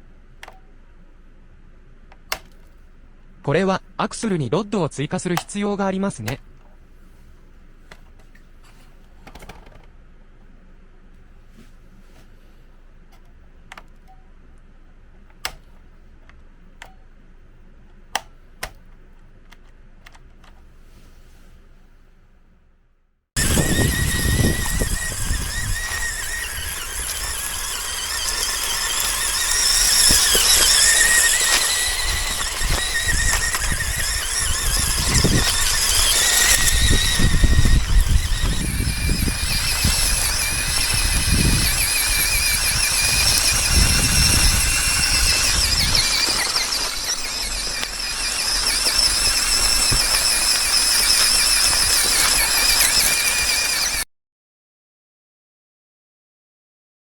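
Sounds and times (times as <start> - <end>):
toy car electric motor whining: 23.4 - 54.1.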